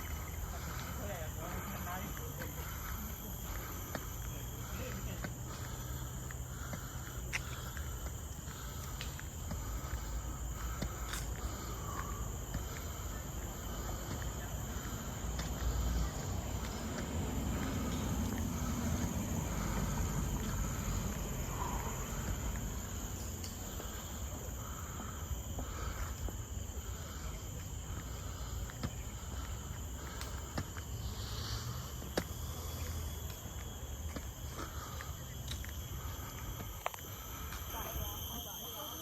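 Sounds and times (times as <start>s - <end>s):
light footsteps: 0.0s - 24.2s
insects droning: 0.0s - 39.0s
pulsing insect call: 0.0s - 39.0s.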